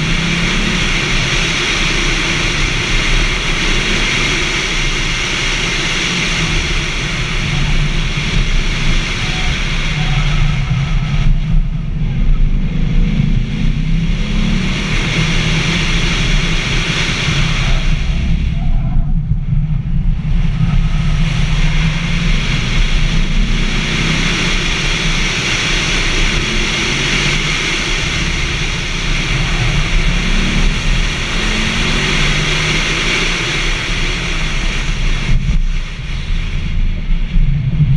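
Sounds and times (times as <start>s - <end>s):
car engine revving hard: 0.0s - 18.9s, 20.2s - 36.5s
wind noise on microphone: 0.0s - 37.9s.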